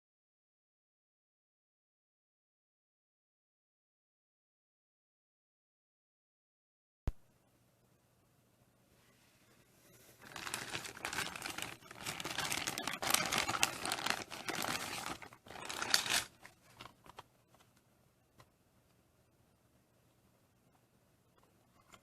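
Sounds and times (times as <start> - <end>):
crinkling and rustling: 9.8 - 18.5.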